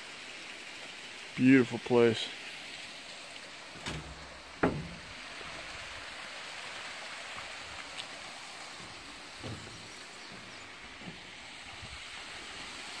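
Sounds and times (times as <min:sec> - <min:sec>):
rushing outdoor noise: 0:00.0 - 0:13.0
soft thump: 0:03.8 - 0:05.1, 0:09.4 - 0:09.9
sharp knock: 0:03.9 - 0:05.1.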